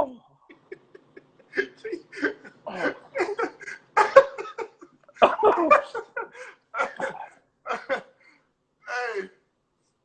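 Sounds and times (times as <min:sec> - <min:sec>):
hearty laughter: 0:00.4 - 0:08.2.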